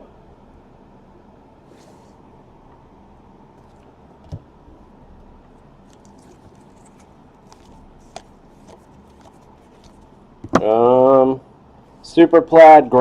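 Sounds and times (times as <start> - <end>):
trading cards clicking and rustling: 5.8 - 10.6.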